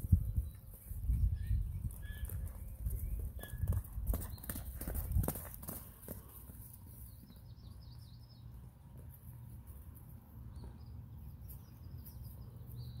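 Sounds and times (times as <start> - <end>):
songbird chirping: 6.8 - 13.0.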